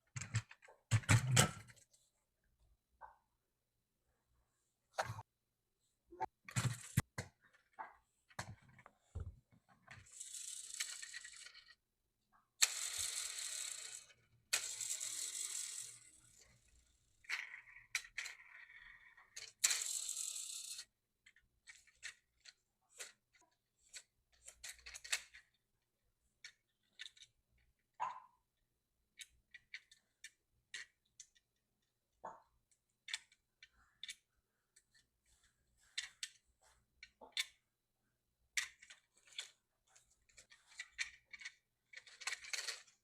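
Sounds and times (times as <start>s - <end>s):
metal toy trucks clicking and rattling: 9.8s - 11.8s, 12.6s - 25.6s, 26.4s - 27.8s, 29.1s - 31.6s, 32.7s - 35.1s, 38.5s - 43.0s.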